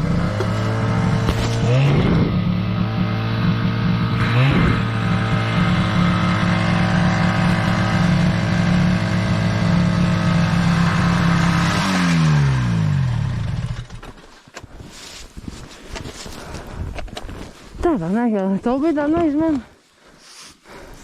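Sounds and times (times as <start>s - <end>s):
snowmobile engine revving: 0.0s - 14.0s.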